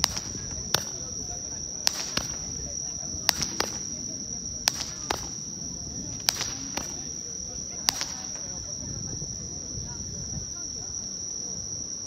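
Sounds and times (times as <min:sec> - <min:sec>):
toy fireworks popping: 0:00.0 - 0:09.3
crickets chirping: 0:00.0 - 0:12.0.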